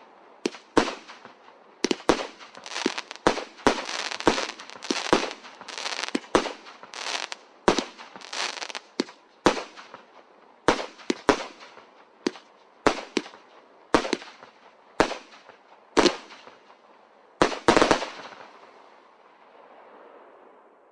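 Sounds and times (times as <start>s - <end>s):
firework bangs with hiss: 0.4s - 10.1s, 10.7s - 16.6s, 17.4s - 18.4s.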